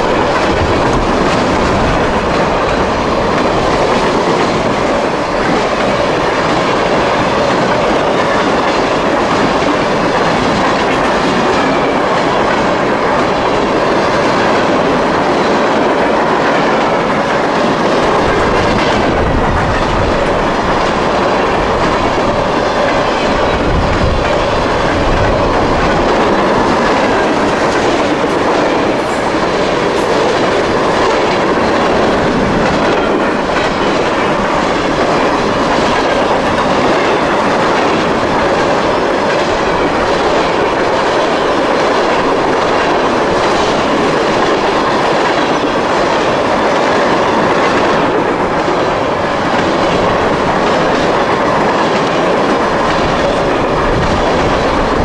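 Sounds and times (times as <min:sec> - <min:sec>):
freight cars rumbling and rattling: 0:00.0 - 0:55.0
wheels clacking over rail joints: 0:00.0 - 0:55.0.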